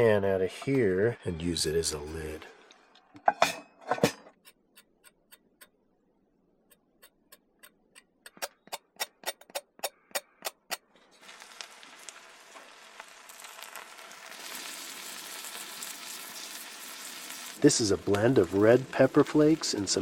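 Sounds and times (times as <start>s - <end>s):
clock-like ticking: 4.4s - 5.8s
food sizzling in a pan: 11.0s - 20.0s.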